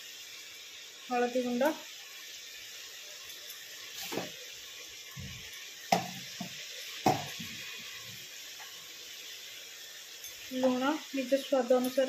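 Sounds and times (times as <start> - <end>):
meat and onions sizzling in oil: 0.0 - 12.0
metal knocks on pot: 5.2 - 7.6.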